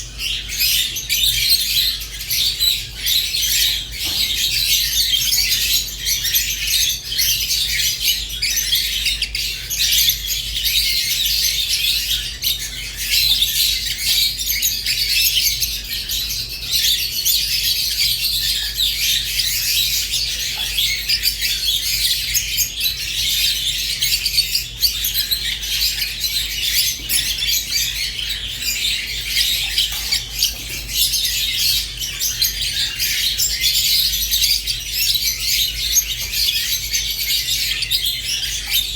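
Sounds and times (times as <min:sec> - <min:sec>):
lovebirds chirping and chattering: 0:00.0 - 0:38.9.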